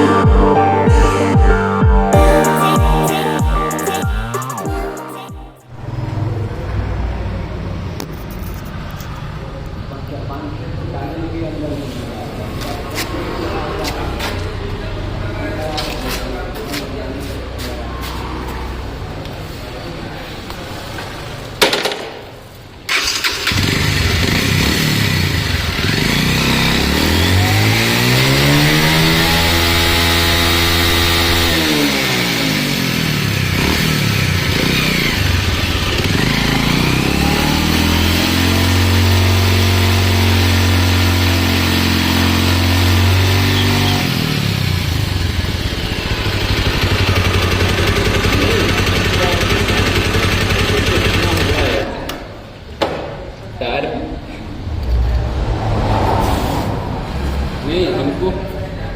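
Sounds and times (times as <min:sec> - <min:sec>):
motorcycle engine starting and revving: 0:21.5 - 0:52.6.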